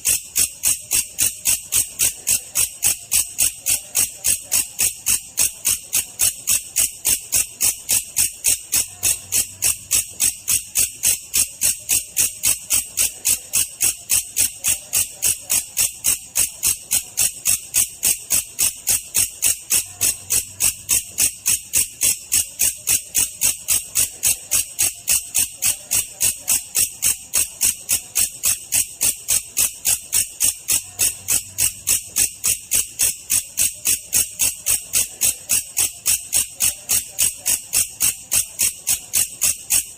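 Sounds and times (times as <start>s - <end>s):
grasshopper high chirps: 0.0s - 39.9s.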